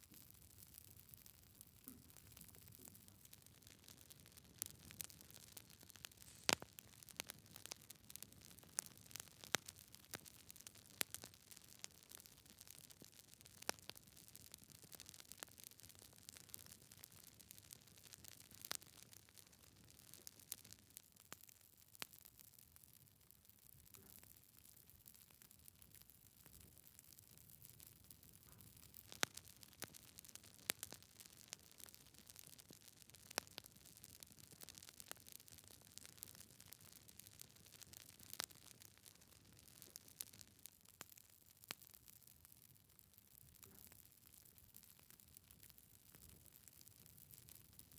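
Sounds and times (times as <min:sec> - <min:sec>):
faint low hiss: 0:00.0 - 0:13.3
wood fire crackling: 0:00.0 - 0:22.8, 0:24.8 - 0:47.9.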